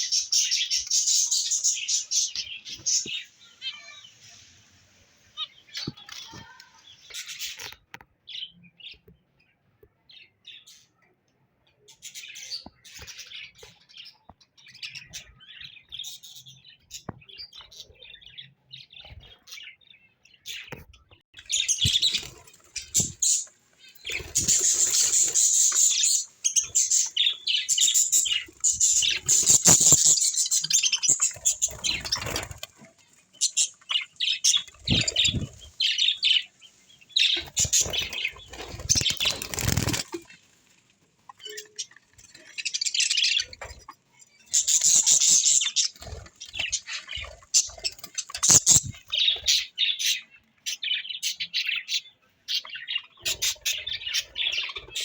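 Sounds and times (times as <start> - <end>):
small birds chirping: 0.0 - 55.0
wings fluttering: 21.4 - 40.8, 43.4 - 49.6.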